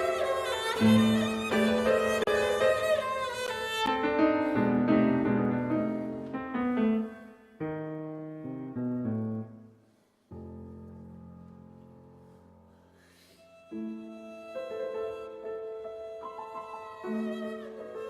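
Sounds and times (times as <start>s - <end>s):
bowed string melody: 0.0s - 9.4s, 13.4s - 18.0s
piano: 0.0s - 18.0s.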